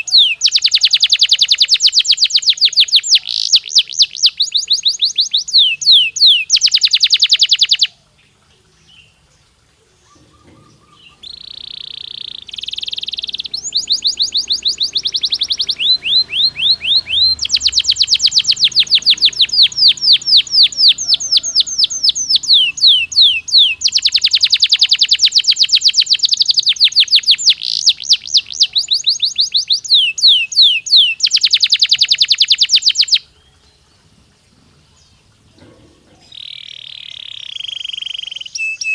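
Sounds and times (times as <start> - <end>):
canary singing trills: 0.0 - 34.2, 34.8 - 38.9.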